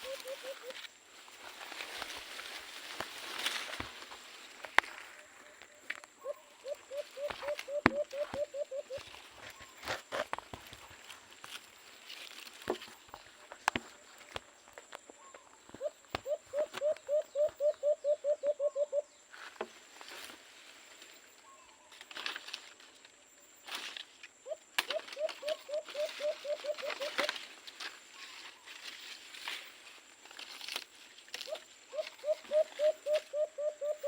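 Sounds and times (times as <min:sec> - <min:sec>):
dove cooing: 0:00.0 - 0:00.8, 0:05.4 - 0:09.8, 0:15.2 - 0:19.2, 0:24.4 - 0:27.5, 0:31.5 - 0:34.0
rustling: 0:00.0 - 0:17.0, 0:24.8 - 0:33.4
footsteps: 0:07.1 - 0:16.9.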